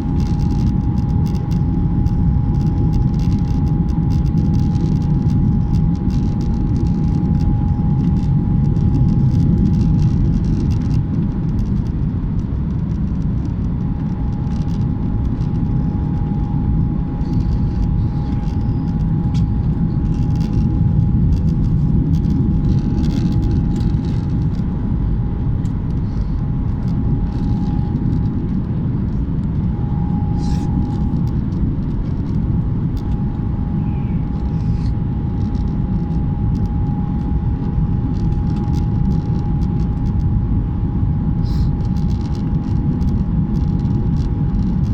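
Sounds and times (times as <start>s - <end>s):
airliner cabin rumble: 0.0s - 44.9s
constant whining tone: 0.0s - 44.9s.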